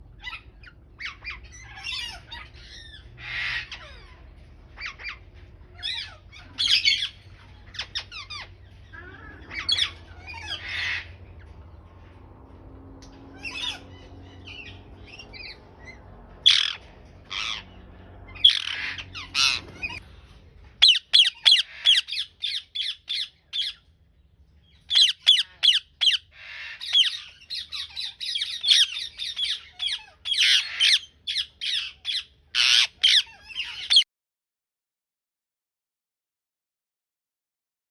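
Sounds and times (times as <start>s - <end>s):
parakeet squawking: 0.2s - 11.3s, 13.3s - 20.0s, 20.8s - 23.9s, 24.8s - 34.0s.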